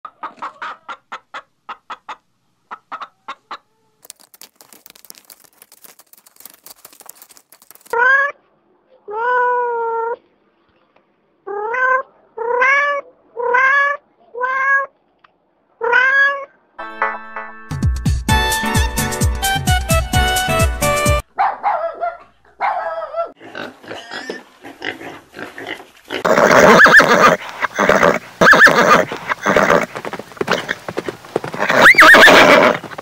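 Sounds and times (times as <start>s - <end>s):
hens clucking: 0.0s - 5.4s, 26.2s - 33.0s
faint scratchy crackling: 4.0s - 8.0s.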